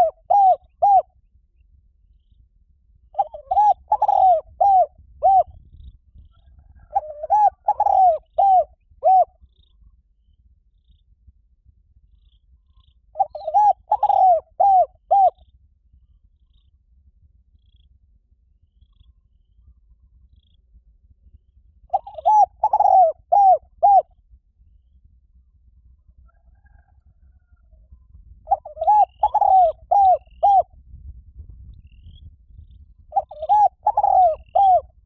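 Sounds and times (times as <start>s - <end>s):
dove cooing: 0.0s - 1.1s, 3.1s - 5.6s, 6.4s - 9.4s, 13.2s - 15.4s, 21.9s - 24.1s, 28.4s - 30.7s, 33.1s - 35.0s.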